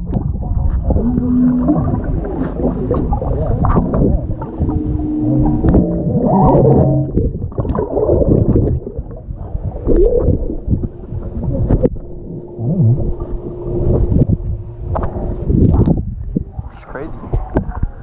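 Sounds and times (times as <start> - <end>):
muffled water gurgling and sloshing: 0.0 - 18.0.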